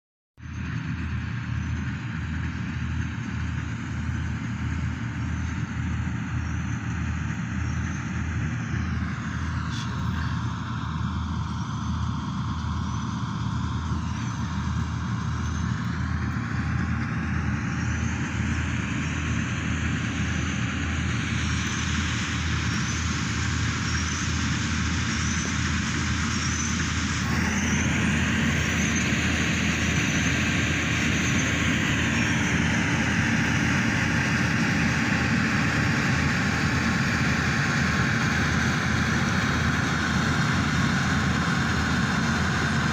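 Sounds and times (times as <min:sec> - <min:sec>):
combine harvester running: 0:00.4 - 0:42.9.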